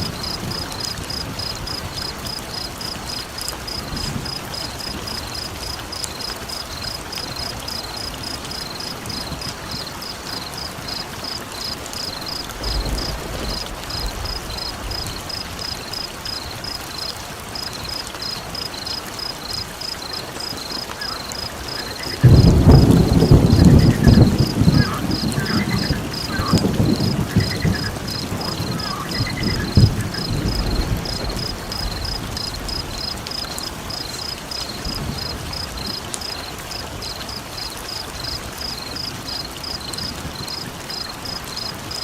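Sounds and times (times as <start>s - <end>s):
steady rain: 0.0s - 42.0s
thunder rolling: 12.2s - 16.0s, 21.8s - 33.9s
loud thunderclap: 12.4s - 15.7s, 22.1s - 33.3s.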